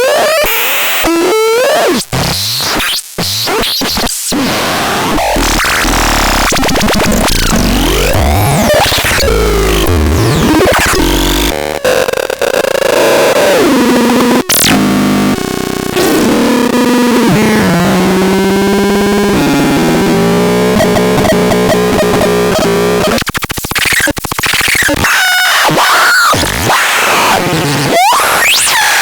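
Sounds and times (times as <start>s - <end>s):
buzzy synthesizer tones: 5.2s - 25.6s.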